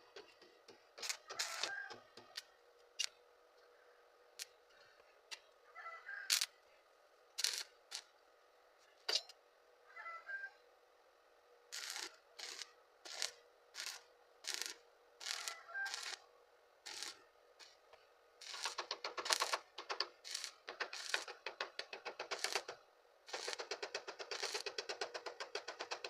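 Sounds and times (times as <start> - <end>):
welding arc crackling: 1.0 - 1.7, 6.3 - 6.5, 7.4 - 8.1, 11.7 - 16.2, 16.8 - 17.8, 18.4 - 26.0.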